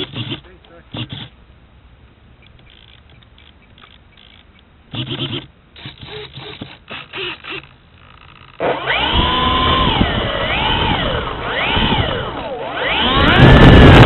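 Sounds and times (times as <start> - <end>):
aircraft engine noise: 8.6 - 14.0.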